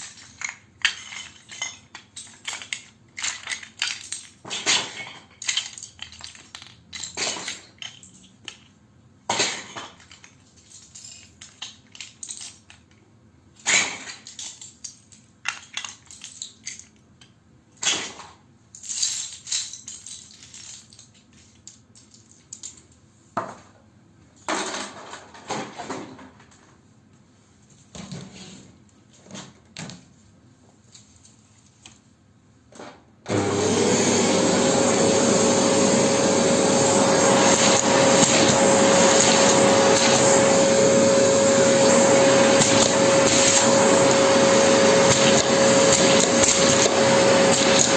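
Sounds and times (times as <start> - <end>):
plastic bricks clattering: 0.0 - 8.7.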